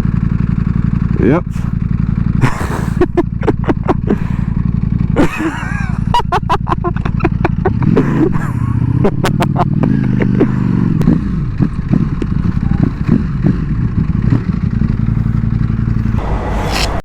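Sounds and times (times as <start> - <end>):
motorcycle engine idling: 0.0 - 16.4.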